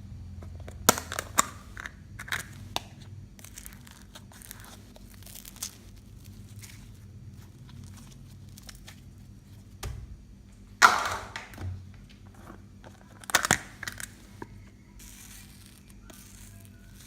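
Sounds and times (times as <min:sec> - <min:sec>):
sticky slime squishes: 0:00.6 - 0:09.8.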